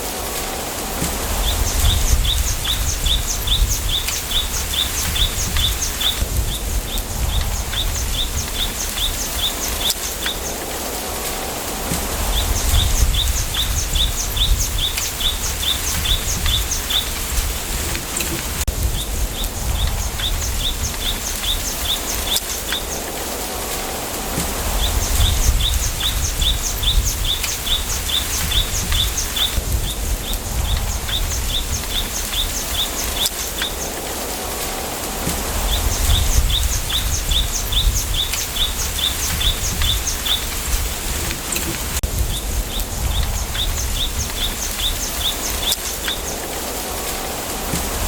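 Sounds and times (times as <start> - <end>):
wind rustling bamboo leaves: 0.0 - 48.0
small bird chirping: 35.6 - 46.4.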